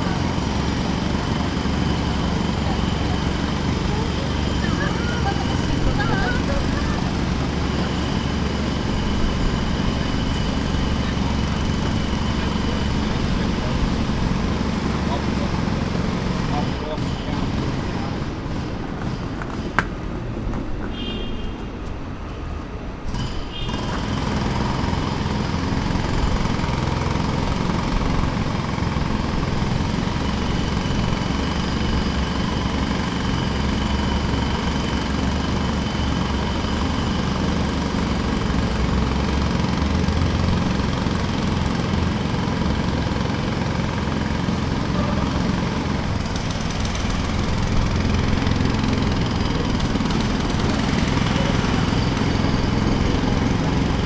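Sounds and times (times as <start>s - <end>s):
jackhammer hammering: 0.0s - 20.1s, 23.1s - 54.0s.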